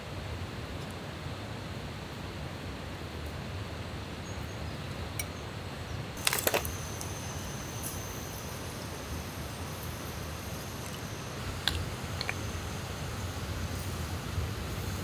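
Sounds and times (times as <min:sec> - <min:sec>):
outdoor background noise: 0:00.0 - 0:15.0
sharp clicks and rattles: 0:06.2 - 0:14.2.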